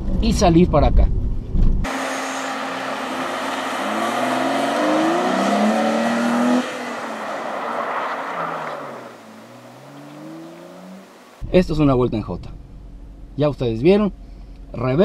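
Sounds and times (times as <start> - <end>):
car engine revving hard: 1.9 - 11.4.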